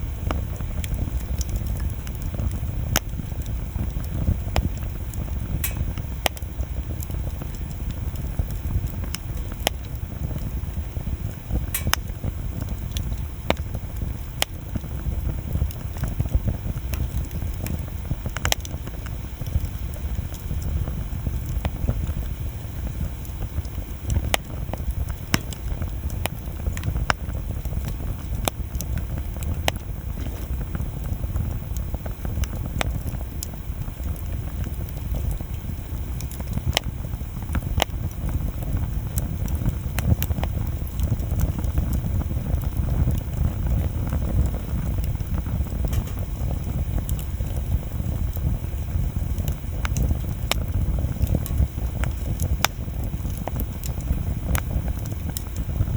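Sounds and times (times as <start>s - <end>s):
bonfire crackling and popping: 0.0s - 55.9s
bonfire rumbling: 0.0s - 55.9s.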